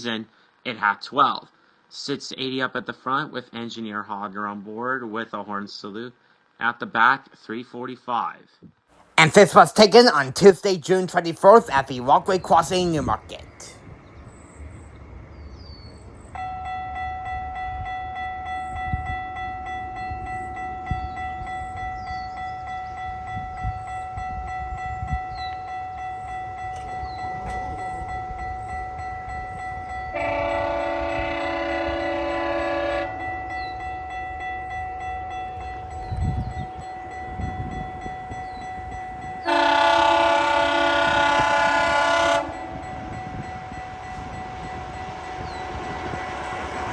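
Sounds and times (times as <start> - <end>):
crossing warning bell ringing: 9.2 - 14.4, 16.0 - 46.9
train horn blast: 30.1 - 33.4, 39.4 - 44.2
train rumble and wheel knocks: 42.5 - 46.9.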